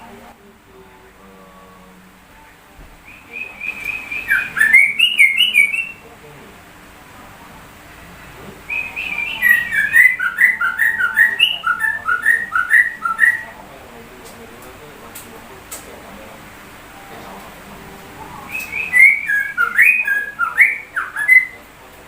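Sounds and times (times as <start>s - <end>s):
bird singing rapid whistled notes: 3.0s - 6.0s, 8.7s - 13.5s, 18.4s - 21.6s.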